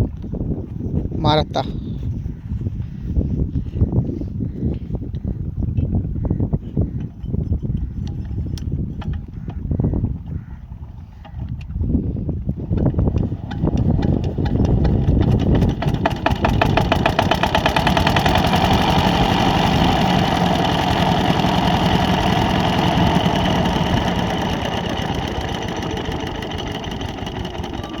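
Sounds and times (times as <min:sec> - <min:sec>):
water pump engine running: 0:13.1 - 0:28.0.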